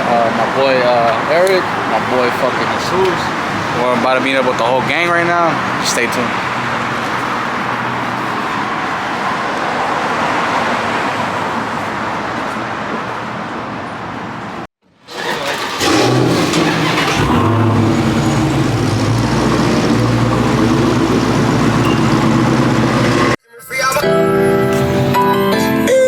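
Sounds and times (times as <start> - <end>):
road and tyre noise: 0.0 - 23.4
car engine running: 15.8 - 23.4.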